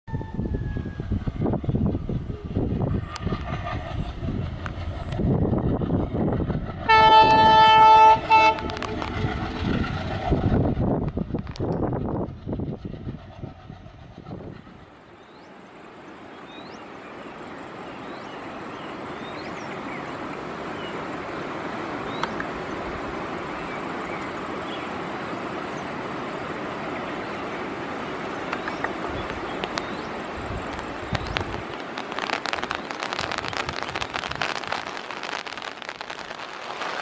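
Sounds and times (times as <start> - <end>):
locomotive engine and wheels rumbling: 0.0 - 37.0
heavy rain hiss: 1.8 - 12.6, 13.5 - 37.0.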